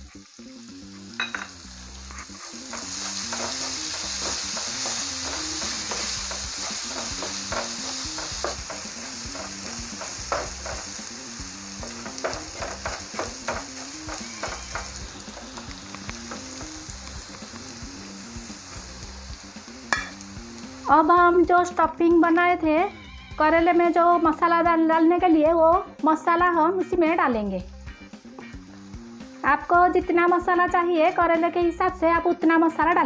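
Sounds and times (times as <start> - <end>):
food sizzling in oil: 0.0 - 32.3
wooden spatula scraping pan: 2.1 - 11.0, 11.8 - 16.8.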